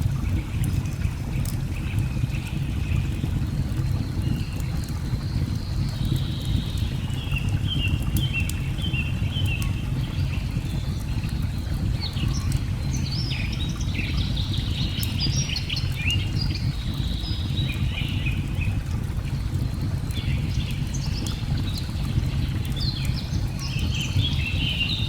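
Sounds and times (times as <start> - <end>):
wood fire crackling: 0.0 - 10.4
birds chirping and twittering: 20.1 - 25.0.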